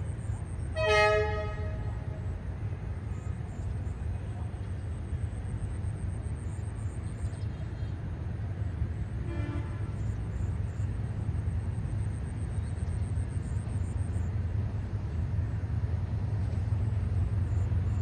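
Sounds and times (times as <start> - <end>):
distant diesel train rumble: 0.0 - 18.0
traffic: 0.0 - 18.0
train horn toot: 0.8 - 2.3, 9.2 - 10.1.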